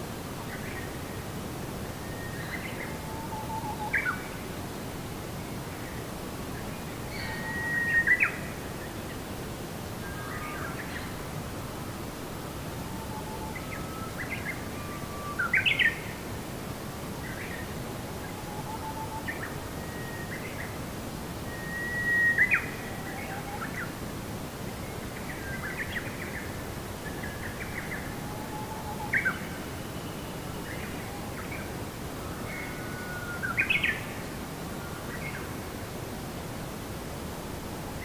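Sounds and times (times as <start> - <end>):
steady background hiss: 0.0 - 38.0
songbirds chirping and whistling: 7.1 - 8.5, 21.5 - 23.9.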